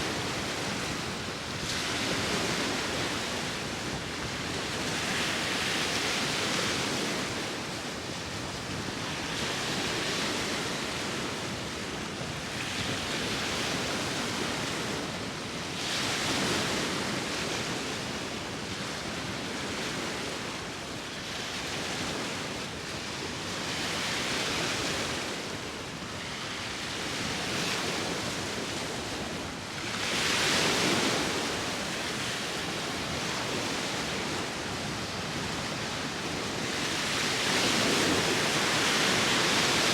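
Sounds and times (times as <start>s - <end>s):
sea waves breaking: 0.0s - 11.8s, 21.5s - 39.9s
wind: 0.0s - 39.9s.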